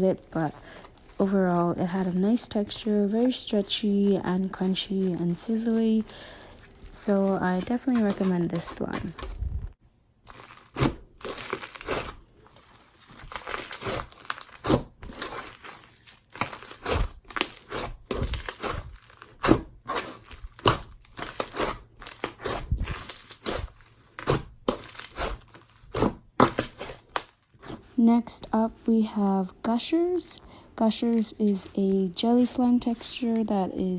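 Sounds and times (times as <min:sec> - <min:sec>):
slime crunching and popping: 0:10.3 - 0:12.3, 0:13.0 - 0:27.7.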